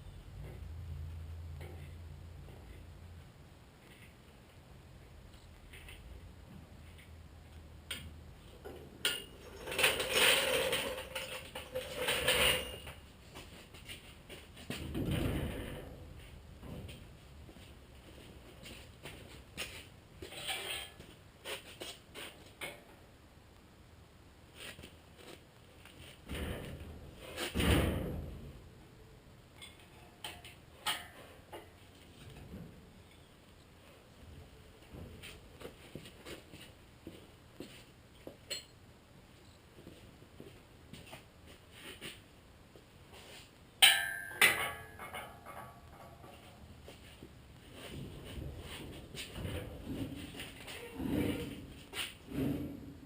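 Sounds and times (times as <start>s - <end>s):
metal rattling and scraping: 8.6s - 17.0s, 18.6s - 22.8s, 43.8s - 53.0s.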